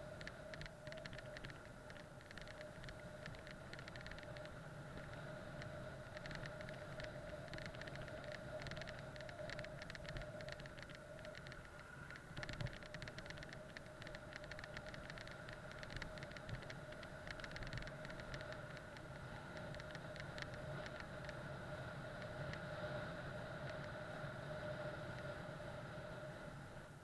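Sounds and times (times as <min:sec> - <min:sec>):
bike ride noise: 0:00.0 - 0:27.0
small rattling clicks: 0:00.1 - 0:21.4.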